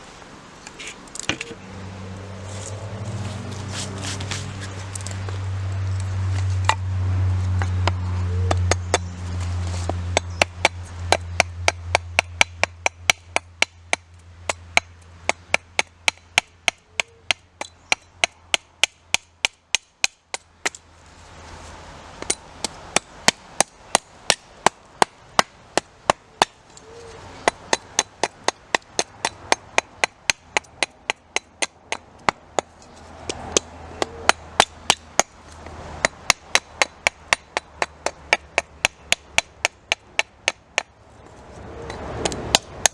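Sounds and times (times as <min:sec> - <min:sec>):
wood being chopped: 0:07.6 - 0:09.1, 0:09.8 - 0:20.8, 0:22.2 - 0:26.6, 0:27.4 - 0:40.9, 0:41.9 - 0:42.9.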